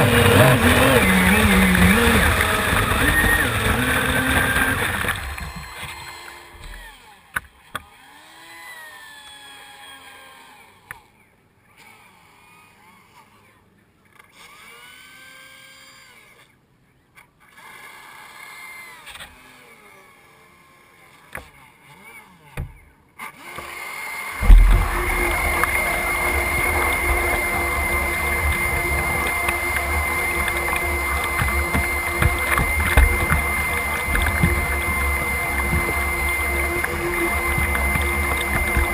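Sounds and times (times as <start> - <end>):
model boat electric motor whine: 0.0 - 11.1, 14.3 - 16.5, 17.5 - 21.2, 23.2 - 38.9
wind rumble on microphone: 24.4 - 30.8.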